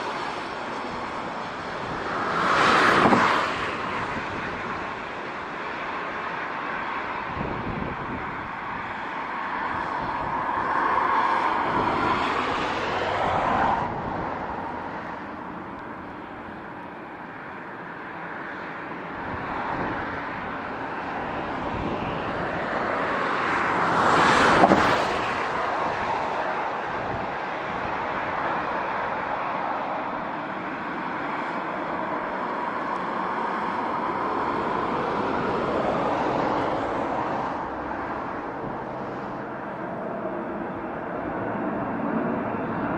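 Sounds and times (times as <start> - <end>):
loud passing whooshes: 0.0 - 5.0
wind on microphone: 0.0 - 16.7, 19.1 - 42.9
jet engine droning: 0.0 - 42.9.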